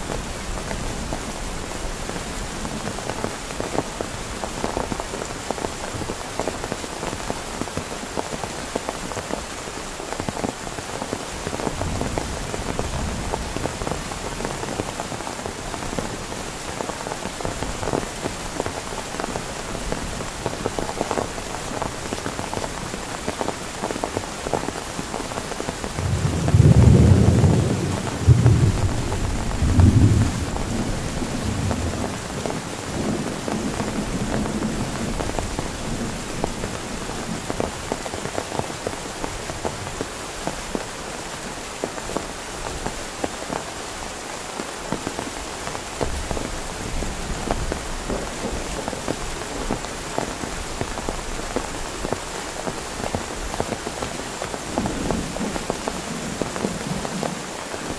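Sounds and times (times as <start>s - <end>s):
heavy rain falling: 0.0s - 57.9s
low rumble of thunder: 26.0s - 36.5s.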